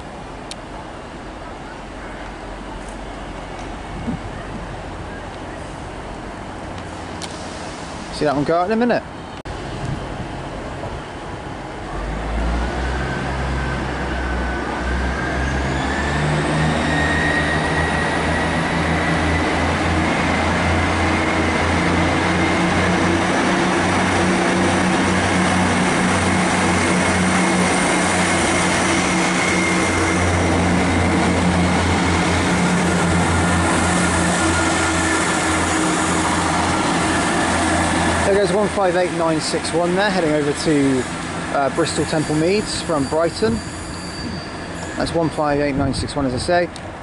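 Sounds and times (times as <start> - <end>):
diesel train engines humming: 0.0 - 47.0
engine whine: 11.8 - 44.4.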